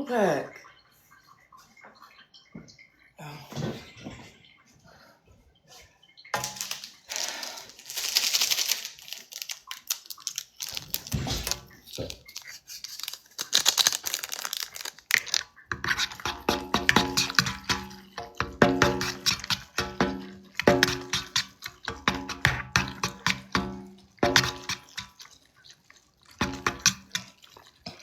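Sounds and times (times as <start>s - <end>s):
plastic packet crinkling and tearing: 6.4s - 16.2s.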